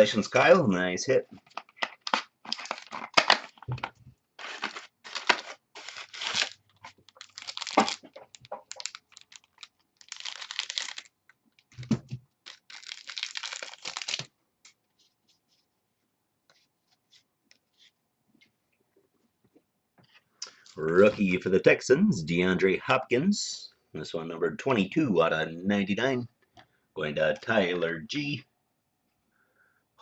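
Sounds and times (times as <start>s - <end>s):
card pack wrappers tearing and crinkling: 1.5s - 3.7s, 4.4s - 11.7s, 12.4s - 14.3s.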